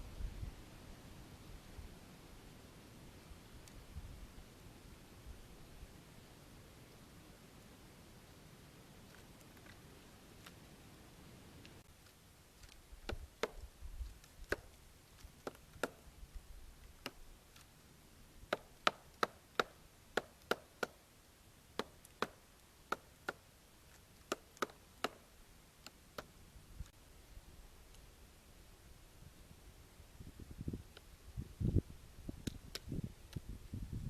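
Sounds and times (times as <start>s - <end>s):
woodpecker pecking on tree: 11.6s - 16.1s, 16.8s - 17.7s, 18.4s - 21.1s, 21.7s - 26.4s.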